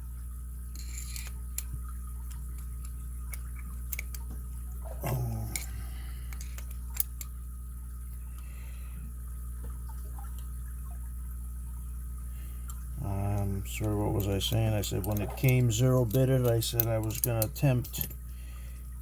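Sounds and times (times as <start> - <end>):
steady low hum: 0.0 - 19.0
metallic clicks and taps: 13.3 - 18.2.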